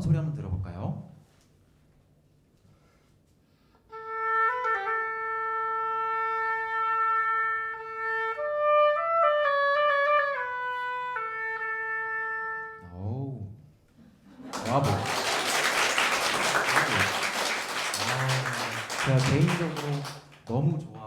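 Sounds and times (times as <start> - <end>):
oboe solo: 3.9 - 12.9.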